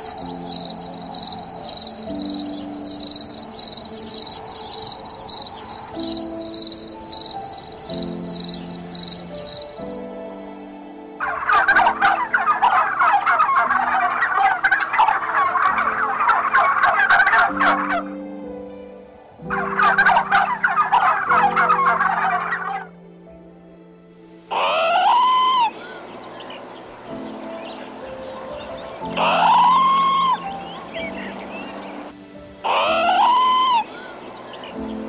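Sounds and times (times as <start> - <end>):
birds chattering rapidly: 0.0 - 10.0, 24.5 - 32.1
soft background music: 0.0 - 35.0.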